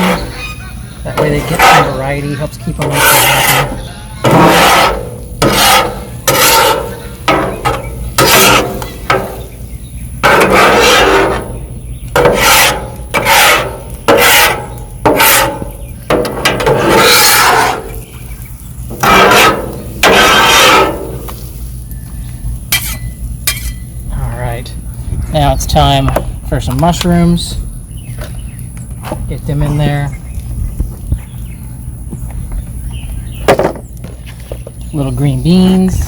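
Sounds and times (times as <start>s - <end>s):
spatula scraping on griddle: 0.0s - 21.8s, 22.7s - 23.9s.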